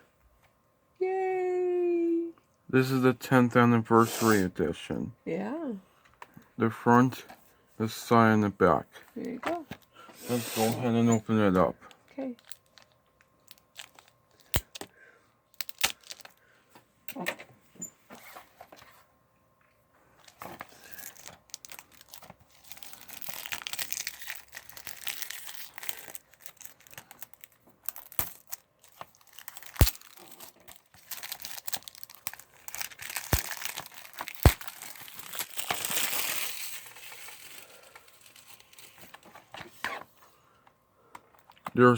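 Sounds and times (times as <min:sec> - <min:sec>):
plastic wrap crinkling: 0:12.2 - 0:14.9, 0:15.6 - 0:16.4, 0:20.2 - 0:39.4.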